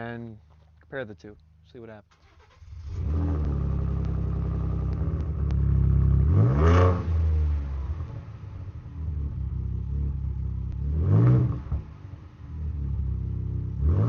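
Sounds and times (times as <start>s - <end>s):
engine starting and idling: 2.1s - 4.8s
engine revving: 2.2s - 14.0s.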